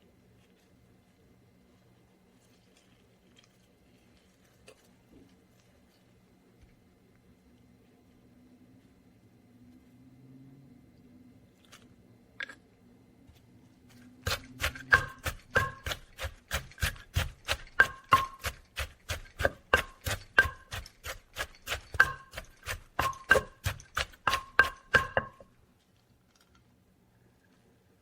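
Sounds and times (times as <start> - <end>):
utensil knocking on hard surface: 14.3 - 25.5.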